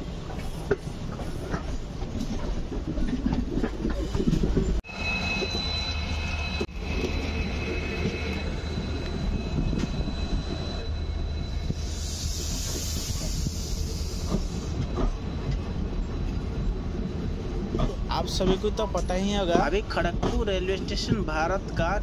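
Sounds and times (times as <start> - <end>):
train wheels rumbling on track: 0.0 - 22.0
hiss: 11.7 - 14.8.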